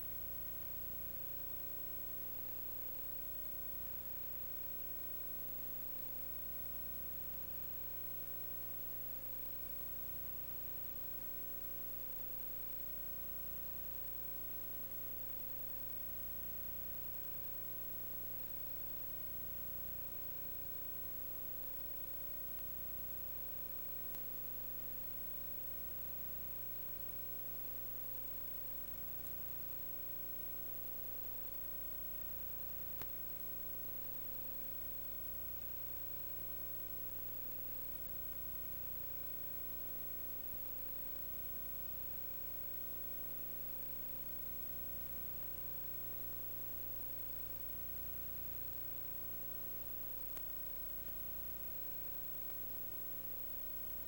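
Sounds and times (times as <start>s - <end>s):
electrical hiss and hum: 0.0s - 54.0s
faint constant tone: 0.0s - 54.0s
faint click: 22.0s - 24.6s, 28.8s - 29.6s, 31.3s - 33.8s, 47.0s - 54.0s.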